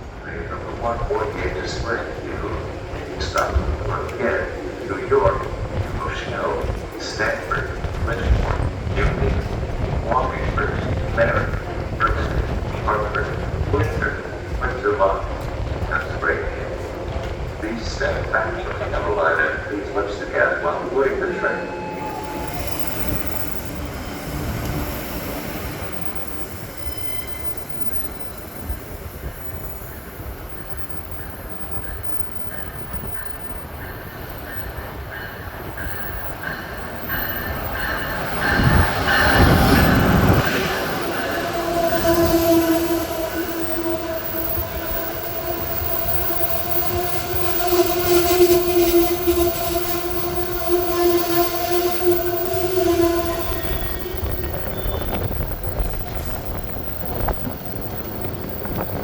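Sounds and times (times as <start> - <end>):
passenger train rumbling: 0.0 - 59.0
metallic squeal: 21.3 - 33.5, 34.5 - 59.0.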